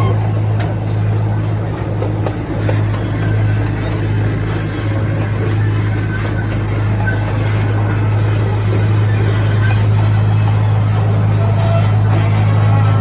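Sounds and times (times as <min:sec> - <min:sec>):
train running: 0:00.0 - 0:13.0.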